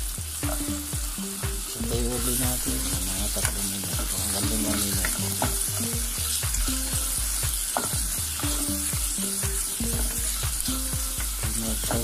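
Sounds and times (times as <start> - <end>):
background music: 0.0 - 12.0
onions sizzling in hot oil: 0.0 - 12.0
spatula stirring in pot: 2.7 - 12.0.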